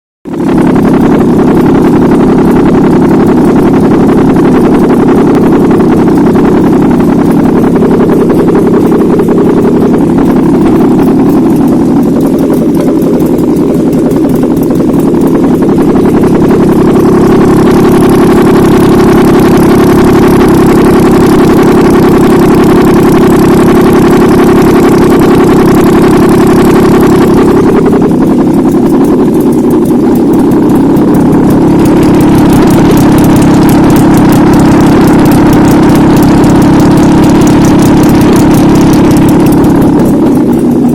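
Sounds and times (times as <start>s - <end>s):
car engine idling: 0.2s - 40.9s.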